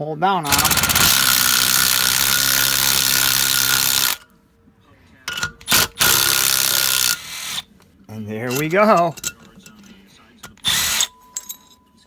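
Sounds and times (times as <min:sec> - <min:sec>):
power tool running: 0:00.5 - 0:04.2, 0:05.7 - 0:07.6, 0:10.6 - 0:11.1.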